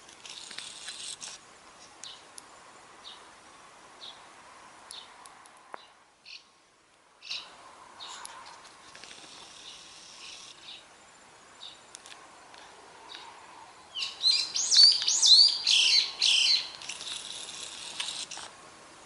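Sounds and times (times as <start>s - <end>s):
songbird chirping: 1.8s - 8.4s, 9.0s - 17.1s.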